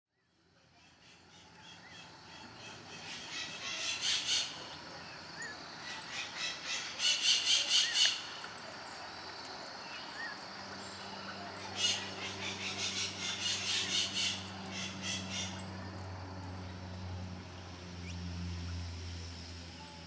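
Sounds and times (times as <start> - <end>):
finches chirping and calling: 0.9 - 8.4, 9.8 - 15.8
rapid repeated bird notes: 0.9 - 15.8.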